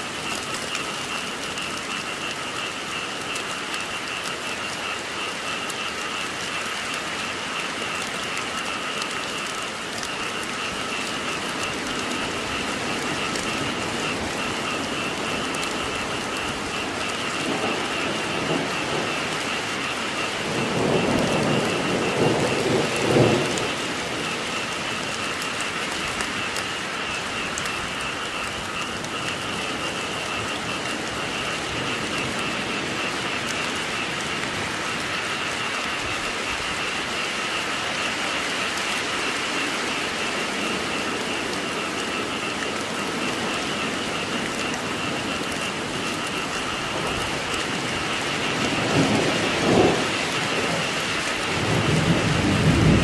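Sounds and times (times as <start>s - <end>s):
frogs calling: 0.0s - 53.0s
steady rain: 0.0s - 53.0s
thunder rumbles: 0.0s - 53.0s.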